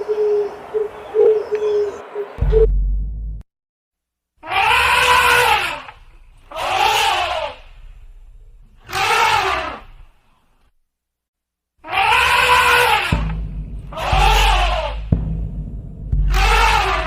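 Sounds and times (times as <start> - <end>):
loud screaming call: 4.4 - 7.7, 8.9 - 10.0, 11.8 - 13.3, 13.9 - 15.1, 16.3 - 17.0.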